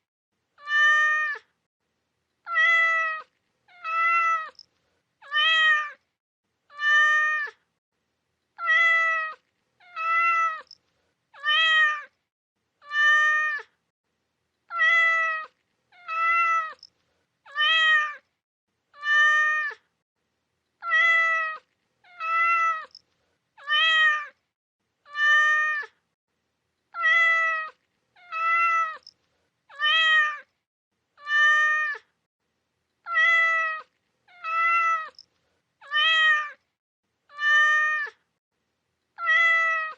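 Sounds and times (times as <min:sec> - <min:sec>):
cat meowing: 0:00.6 - 0:01.5, 0:02.4 - 0:06.0, 0:06.7 - 0:07.6, 0:08.6 - 0:10.8, 0:11.4 - 0:12.1, 0:12.8 - 0:13.7, 0:14.7 - 0:16.9, 0:17.5 - 0:18.2, 0:19.0 - 0:19.8, 0:20.8 - 0:23.0, 0:23.6 - 0:24.4, 0:25.1 - 0:26.0, 0:26.9 - 0:30.5, 0:31.2 - 0:32.1, 0:33.0 - 0:36.6, 0:37.3 - 0:38.3, 0:39.2 - 0:39.9.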